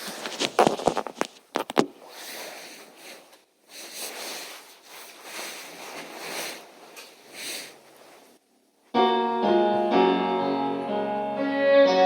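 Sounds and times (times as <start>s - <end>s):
soft breathing close to microphone: 2.0s - 8.4s.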